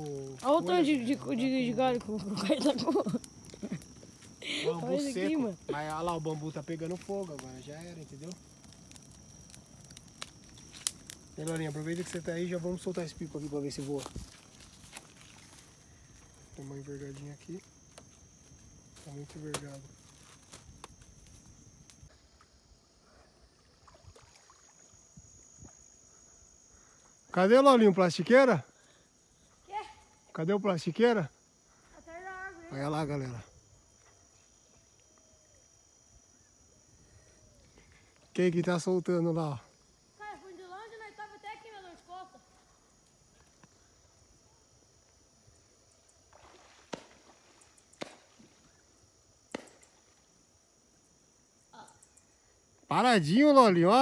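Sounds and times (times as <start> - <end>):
thin high-pitched whine: 0.0 - 29.0
insect drone: 0.0 - 54.0.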